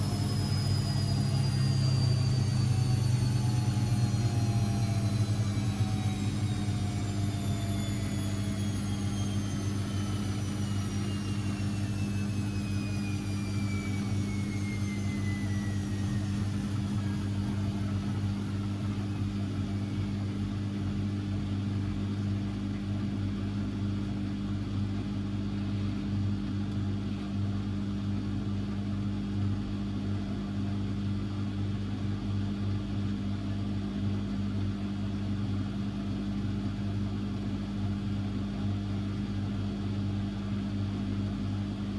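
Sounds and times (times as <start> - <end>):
steady low hum: 0.0 - 24.7
washing machine motor whine: 0.0 - 25.3, 29.0 - 41.9.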